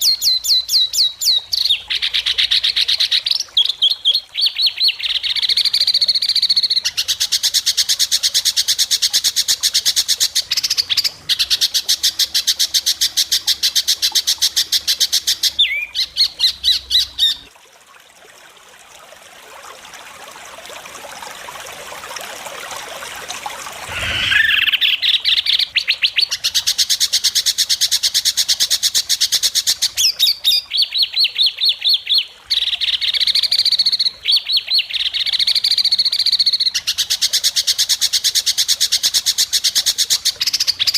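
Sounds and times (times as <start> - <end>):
upward-sweeping bird note: 23.8 - 25.0
bird singing fast sharp notes: 23.9 - 25.9.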